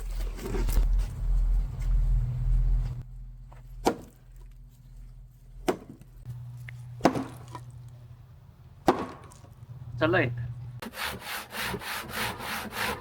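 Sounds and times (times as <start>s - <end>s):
low steady hum: 0.0s - 10.8s
axe striking firewood: 3.8s - 4.3s, 5.6s - 6.1s, 7.0s - 7.7s, 8.8s - 9.5s.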